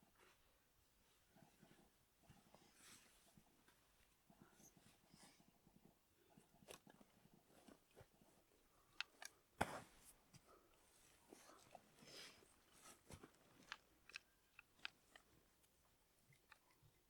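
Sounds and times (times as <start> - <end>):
clicks of small things handled: 8.9 - 10.5, 12.6 - 17.0.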